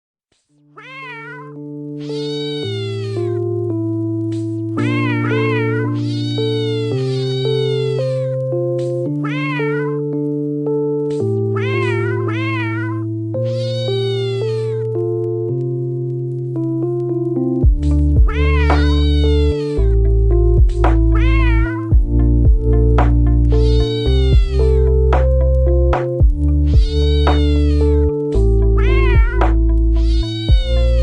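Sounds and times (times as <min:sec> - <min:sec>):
cat meowing: 0:00.8 - 0:03.4, 0:04.8 - 0:08.4, 0:09.1 - 0:10.1, 0:11.5 - 0:15.0, 0:18.2 - 0:20.0, 0:21.0 - 0:22.0, 0:23.5 - 0:25.0, 0:26.6 - 0:31.0
music of sustained chords: 0:01.6 - 0:09.3, 0:09.9 - 0:13.6, 0:14.2 - 0:31.0.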